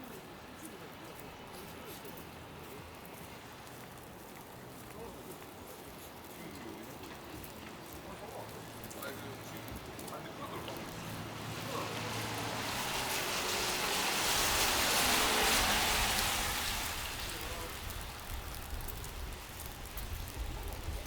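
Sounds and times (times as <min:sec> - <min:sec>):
car tyre hiss on snow: 0:10.4 - 0:21.0.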